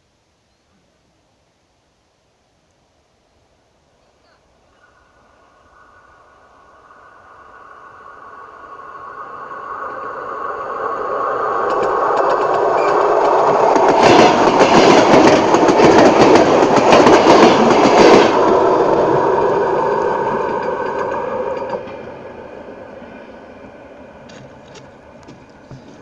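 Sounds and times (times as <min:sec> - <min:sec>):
electric train passing: 0:04.6 - 0:26.0
wheels clacking over rails: 0:11.2 - 0:22.4.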